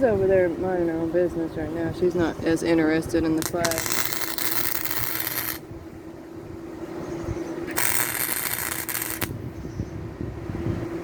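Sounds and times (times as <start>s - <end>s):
steady hum: 0.0s - 11.0s
welder arc crackling: 3.4s - 5.6s, 7.7s - 9.4s.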